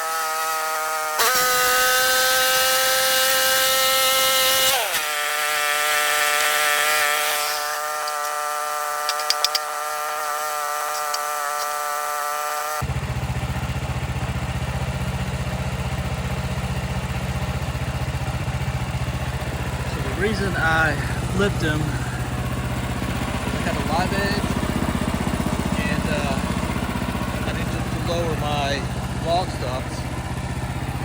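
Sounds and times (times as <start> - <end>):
sawmill engine cutting log: 0.0 - 31.0
sharp clicks: 10.9 - 11.7.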